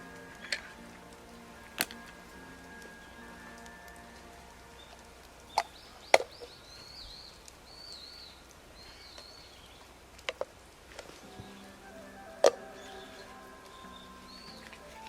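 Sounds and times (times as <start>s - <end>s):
sharp pops and cracks: 1.8s - 2.2s.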